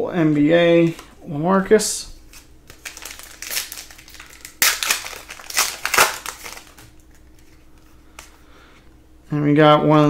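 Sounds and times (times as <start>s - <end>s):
plastic crinkling and rustling: 2.2s - 8.4s.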